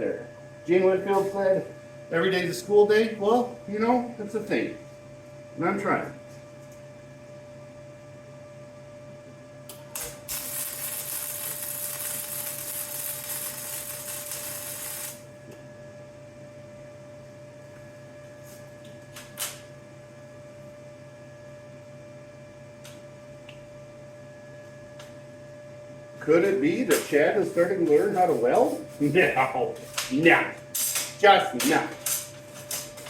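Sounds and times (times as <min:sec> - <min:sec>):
electrical hum: 0:00.0 - 0:33.0
welder arc hissing: 0:09.7 - 0:15.3, 0:26.9 - 0:33.0.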